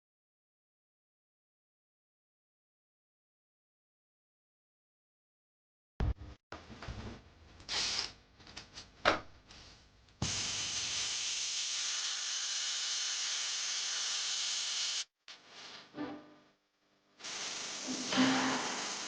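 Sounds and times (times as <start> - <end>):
steady hiss: 10.2 - 15.1, 17.2 - 19.0
hissing and scraping noises: 17.2 - 19.0.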